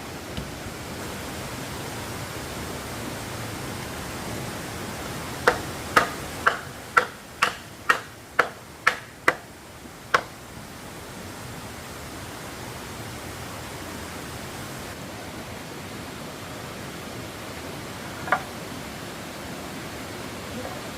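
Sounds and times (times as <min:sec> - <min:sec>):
hammer blows on wood: 0:05.4 - 0:09.5.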